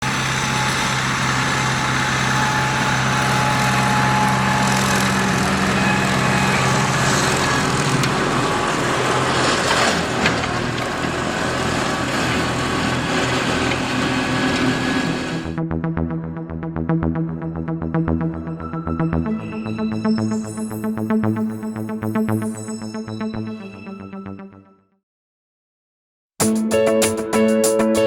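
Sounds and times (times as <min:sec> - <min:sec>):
rotary mower hiss: 0:00.0 - 0:15.5
tractor diesel engine running: 0:00.0 - 0:15.6.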